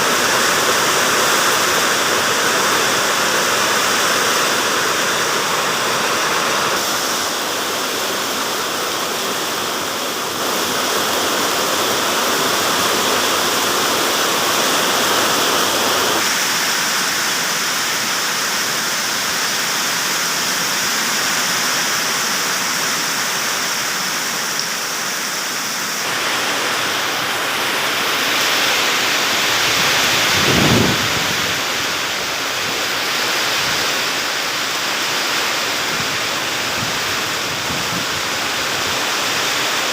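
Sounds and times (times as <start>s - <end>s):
heavy rain pouring: 0.0s - 39.9s
strong wind: 26.0s - 39.9s.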